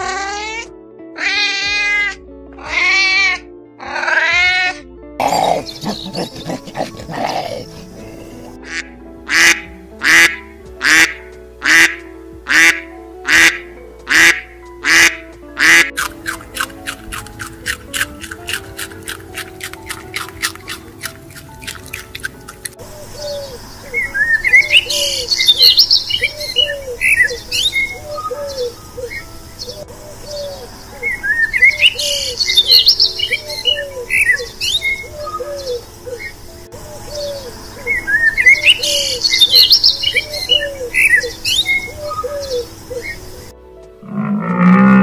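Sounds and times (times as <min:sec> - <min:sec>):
birds chirping and twittering: 0:05.2 - 0:08.6, 0:19.3 - 0:43.5.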